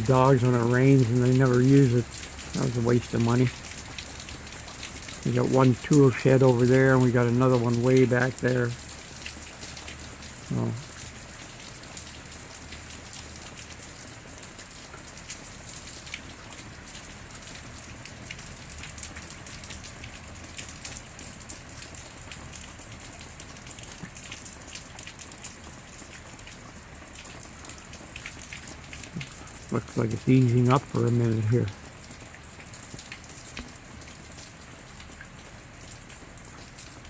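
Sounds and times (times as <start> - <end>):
rain falling: 0.0 - 37.0.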